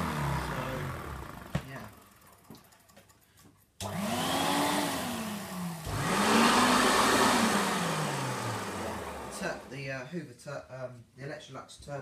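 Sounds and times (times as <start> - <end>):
upright vacuum cleaner motor: 0.0 - 2.2, 3.8 - 9.8.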